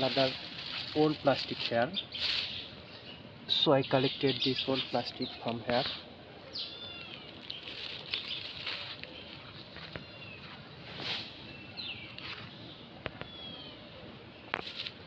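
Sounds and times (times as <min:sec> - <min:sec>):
rustling: 0:00.0 - 0:02.7, 0:07.0 - 0:12.6.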